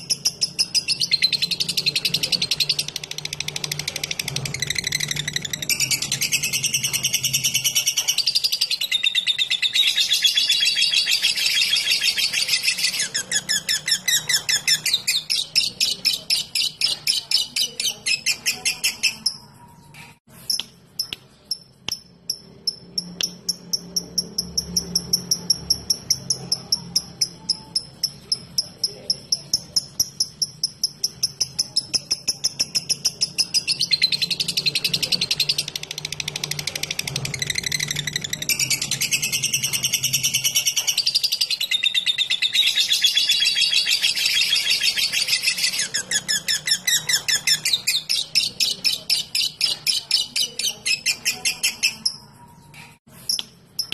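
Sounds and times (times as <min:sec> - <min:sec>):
bird high chatter: 0:00.0 - 0:20.7, 0:22.9 - 0:53.9
bird high ticking notes: 0:20.5 - 0:52.3.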